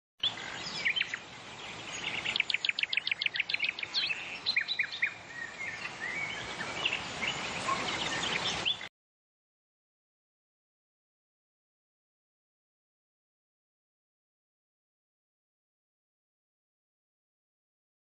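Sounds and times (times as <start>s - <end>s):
birds chirping and calling: 0.2s - 8.9s
steady background hiss: 0.2s - 8.9s.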